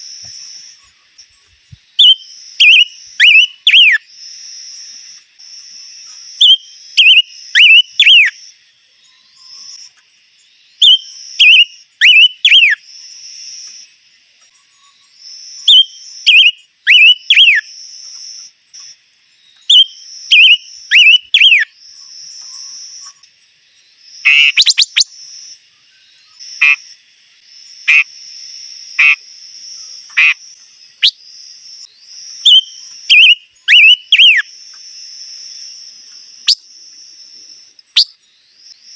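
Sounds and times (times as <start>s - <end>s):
songbird whistling: 2.0s - 4.0s, 6.4s - 8.4s, 10.8s - 12.8s, 15.6s - 17.7s, 19.6s - 21.7s, 24.3s - 25.2s, 32.3s - 34.5s, 37.9s - 38.2s
high insect-like buzz: 20.0s - 38.9s.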